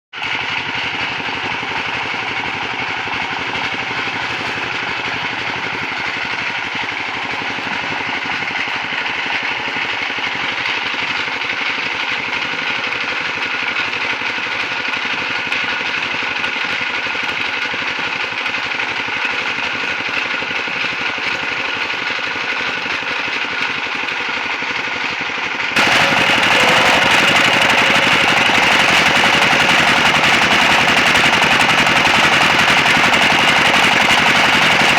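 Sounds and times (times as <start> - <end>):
sawmill machinery droning: 0.2 - 15.9, 25.8 - 34.9.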